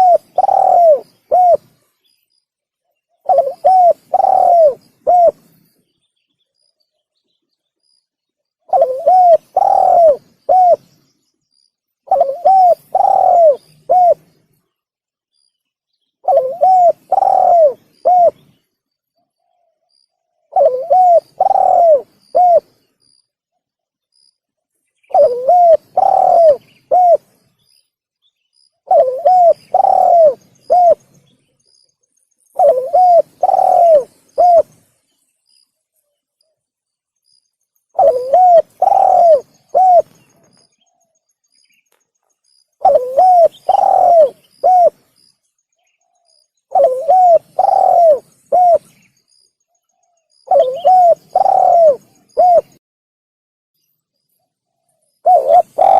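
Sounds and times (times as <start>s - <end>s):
dove cooing: 0.0s - 1.8s, 3.2s - 5.5s, 8.7s - 10.9s, 12.0s - 14.3s, 16.2s - 18.5s, 20.5s - 22.8s, 25.1s - 27.3s, 28.8s - 31.1s, 32.6s - 34.9s, 37.9s - 40.6s, 42.8s - 45.1s, 46.0s - 49.0s, 50.4s - 52.8s, 55.2s - 55.9s.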